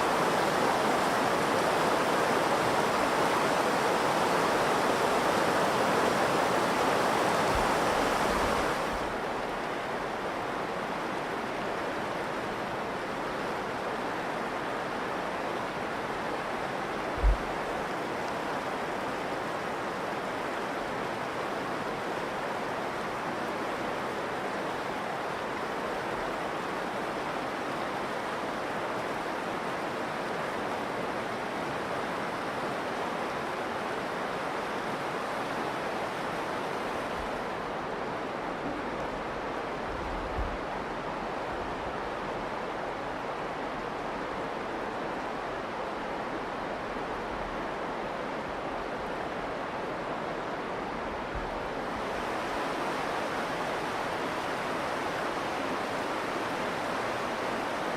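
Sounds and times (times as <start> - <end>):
river water rushing: 0.0 - 57.9
brief low thump: 17.2 - 17.5.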